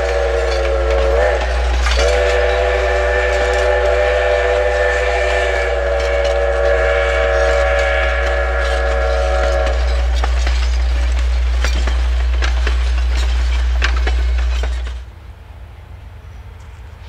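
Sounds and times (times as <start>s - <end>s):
train warning signal blast: 0.0s - 10.1s
train passing with heavy rumble: 0.0s - 17.0s
wheels clicking and clanking on rails: 0.0s - 17.0s.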